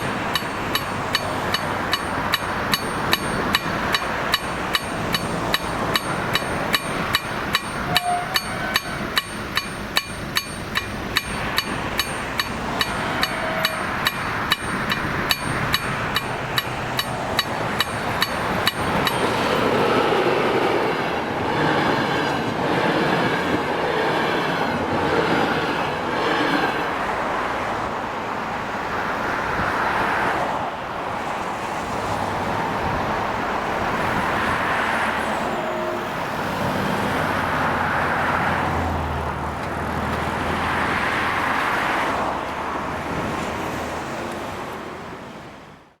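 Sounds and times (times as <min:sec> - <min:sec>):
electronic level crossing bell: 0:00.0 - 0:19.8
train wheels rumbling on rails: 0:00.0 - 0:45.8.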